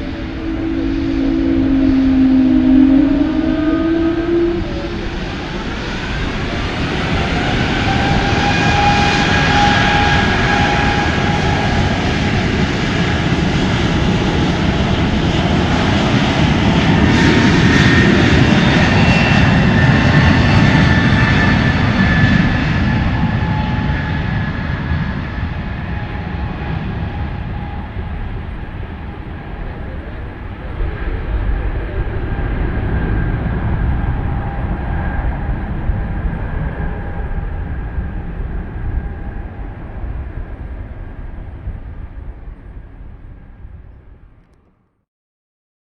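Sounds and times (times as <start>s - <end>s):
jet engines whining: 0.0s - 43.2s.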